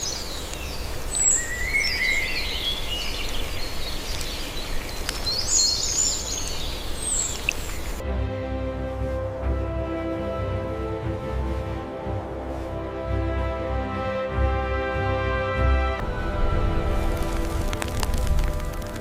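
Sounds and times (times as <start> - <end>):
birds singing: 0.0 - 8.0
music with sustained tones: 8.0 - 19.0
low steady rumble: 16.0 - 19.0.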